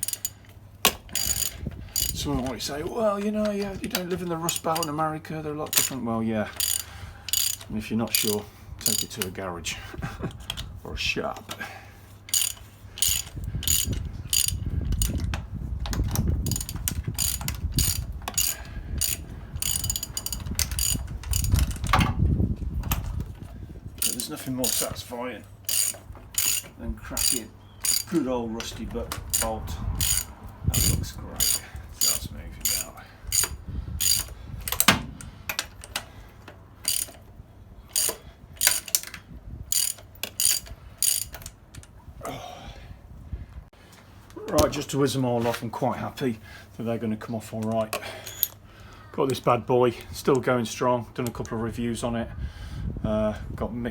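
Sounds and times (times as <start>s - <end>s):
socket ratchet clicking: 0.0s - 5.0s, 6.6s - 9.4s, 12.3s - 22.0s, 24.0s - 25.0s, 25.6s - 36.1s, 36.8s - 37.3s, 37.9s - 41.9s.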